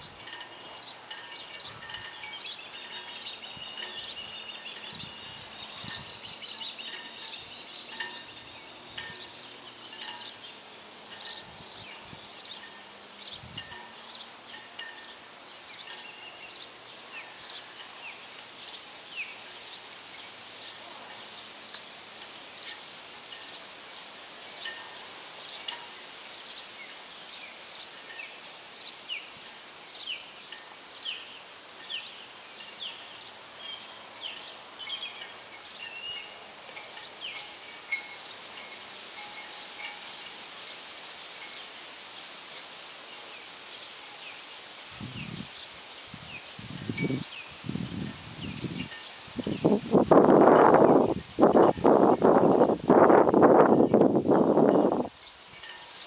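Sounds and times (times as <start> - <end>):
faint outdoor background noise: 0.0 - 56.0
bird chirping: 0.7 - 22.8, 26.4 - 40.0.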